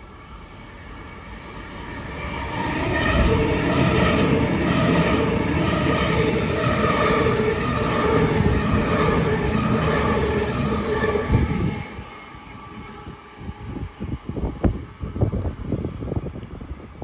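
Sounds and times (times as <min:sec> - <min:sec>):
electric train passing: 0:00.0 - 0:17.0
train whine: 0:00.0 - 0:17.0
wind buffeting thumps: 0:06.2 - 0:17.0.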